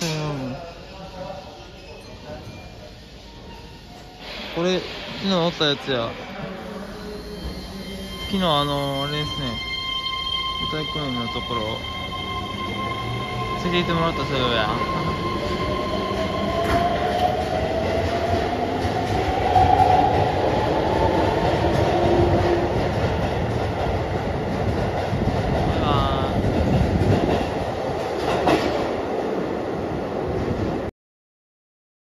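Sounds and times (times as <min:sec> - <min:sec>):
wheels rumbling on rail: 0:12.6 - 0:30.9.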